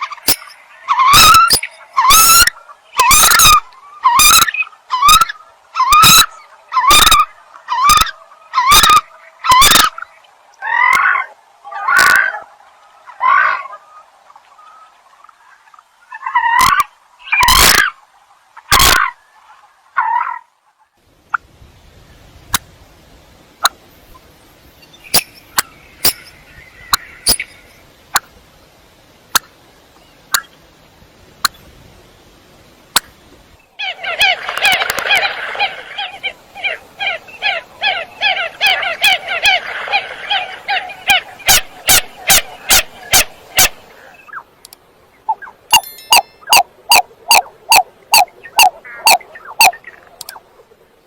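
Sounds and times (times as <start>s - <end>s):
coot calling: 0.0s - 18.0s, 33.8s - 44.5s, 45.2s - 50.5s
sharp clicks: 50.2s - 50.4s.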